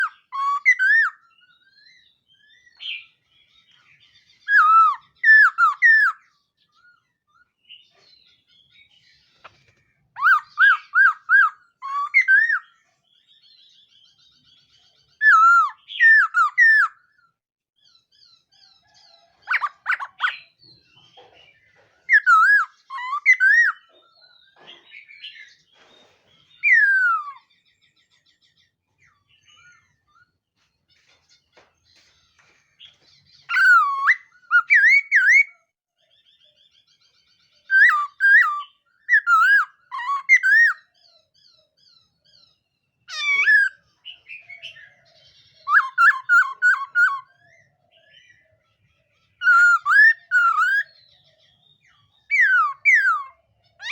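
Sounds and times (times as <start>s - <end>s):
bird singing whistled phrases: 0.0s - 3.2s, 4.4s - 6.3s, 10.2s - 12.8s, 15.2s - 17.1s, 22.1s - 23.9s, 26.6s - 27.5s, 33.4s - 35.6s, 37.7s - 40.9s, 43.1s - 45.0s, 45.6s - 48.4s, 49.4s - 53.9s.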